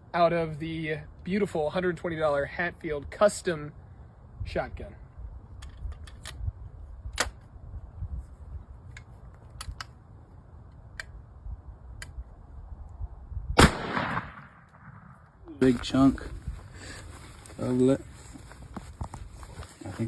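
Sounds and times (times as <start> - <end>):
shotgun blast: 13.6 - 15.2.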